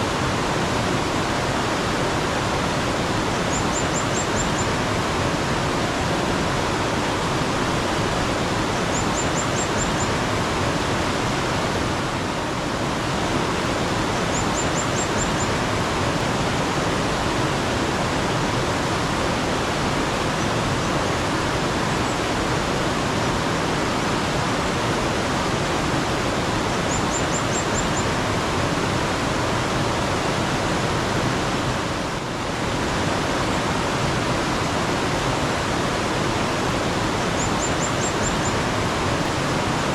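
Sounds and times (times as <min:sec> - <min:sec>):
water rushing over rocks: 0:00.0 - 0:39.9
bird chirping: 0:03.5 - 0:04.7, 0:08.8 - 0:10.2, 0:14.2 - 0:15.6, 0:26.9 - 0:28.1, 0:37.3 - 0:38.6.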